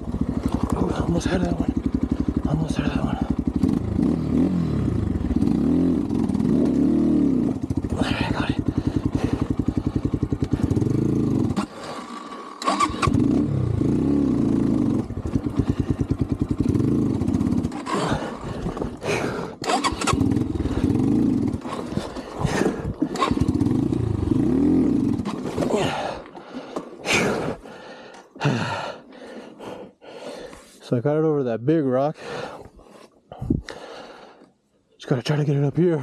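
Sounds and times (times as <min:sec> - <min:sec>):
dirt bike engine revving: 0:00.0 - 0:26.2.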